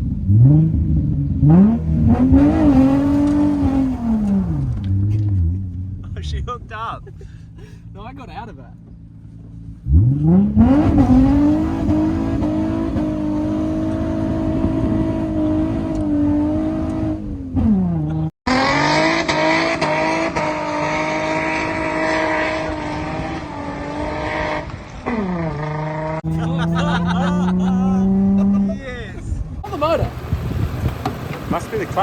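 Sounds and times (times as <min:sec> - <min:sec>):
car engine revving hard: 0:00.2 - 0:05.6, 0:09.8 - 0:28.7.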